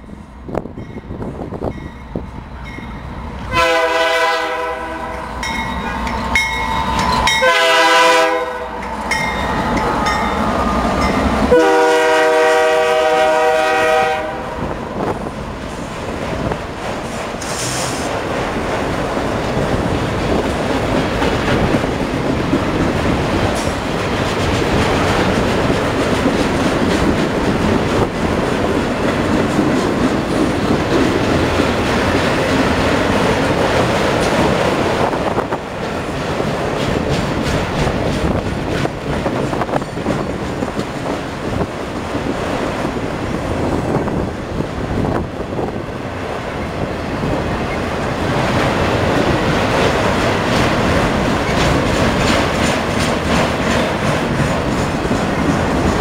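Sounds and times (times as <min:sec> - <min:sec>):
locomotive horn blasts: 0:03.5 - 0:05.3, 0:07.3 - 0:08.8, 0:11.5 - 0:14.6.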